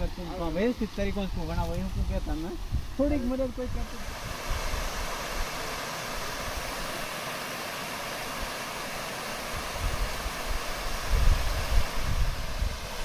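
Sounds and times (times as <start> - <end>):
wind buffeting microphone: 0.0 - 5.6, 9.5 - 13.0
water rushing: 0.0 - 13.0.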